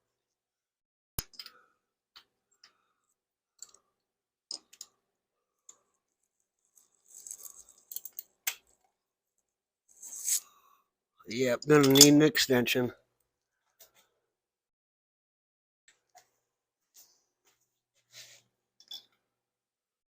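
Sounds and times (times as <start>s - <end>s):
metal hand tools clinking: 11.6s - 12.3s.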